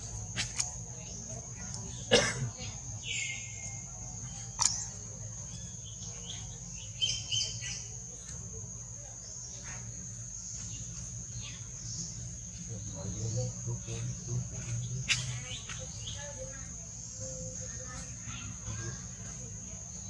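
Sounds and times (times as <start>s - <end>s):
high-pitched insect drone: 0.0s - 20.0s
bird chirps: 1.0s - 8.4s
sharp click: 4.6s - 4.8s.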